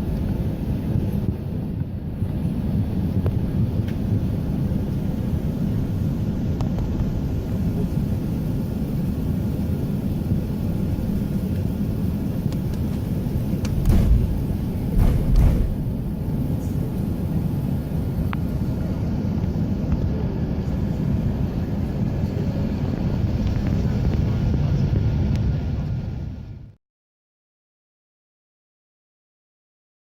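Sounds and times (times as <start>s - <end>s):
aircraft cabin rumble: 0.0s - 26.8s
heavy low bumps: 13.6s - 16.6s.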